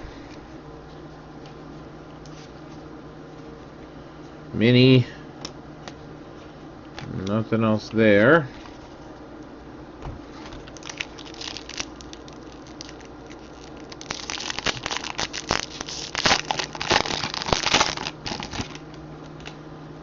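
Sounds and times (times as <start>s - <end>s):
foil wrapper tearing and crinkling: 10.7s - 19.5s.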